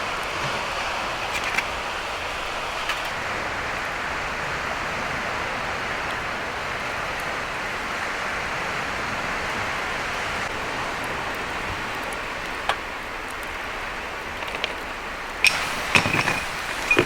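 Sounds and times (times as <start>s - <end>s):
outdoor ambience hiss: 0.0s - 17.0s
metallic clink: 15.4s - 17.0s.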